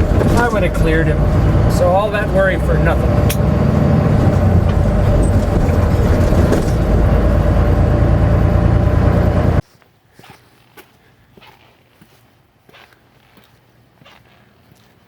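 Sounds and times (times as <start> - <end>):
road noise: 0.0 - 9.6
truck diesel engine rumble: 0.0 - 9.6.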